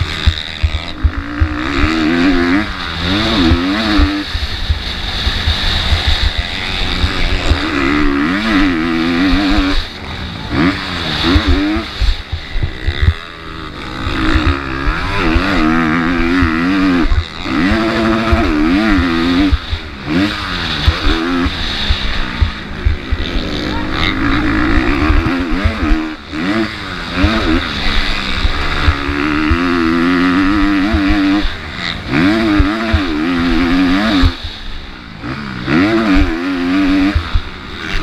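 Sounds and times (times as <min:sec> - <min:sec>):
motocross bike engine revving: 0:00.0 - 0:38.0.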